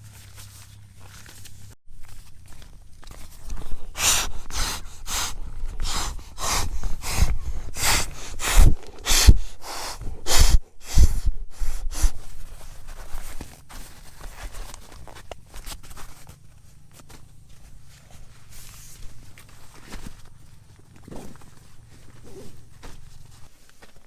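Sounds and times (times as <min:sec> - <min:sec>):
footsteps: 0:00.0 - 0:13.9.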